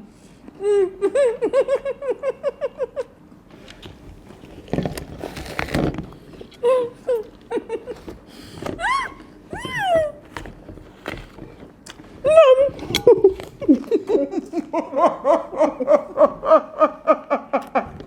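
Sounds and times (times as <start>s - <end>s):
woman laughing: 0.6s - 3.2s, 6.6s - 8.1s, 8.8s - 10.2s, 12.3s - 17.9s.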